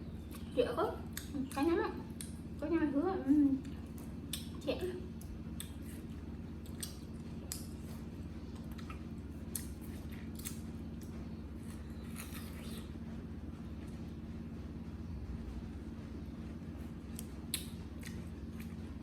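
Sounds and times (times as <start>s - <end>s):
steady low hum: 0.0s - 19.0s
crunching watermelon flesh: 5.6s - 12.9s.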